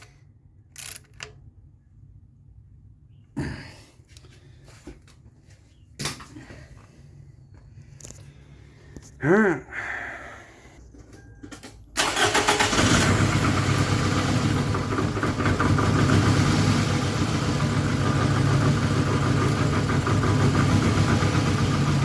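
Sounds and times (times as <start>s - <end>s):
car engine cranking and idling: 11.5s - 22.0s.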